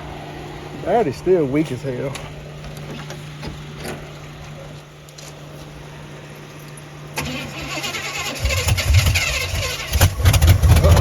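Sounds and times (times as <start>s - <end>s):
steady low hum: 0.0s - 11.0s
engine starter cranking: 7.2s - 11.0s.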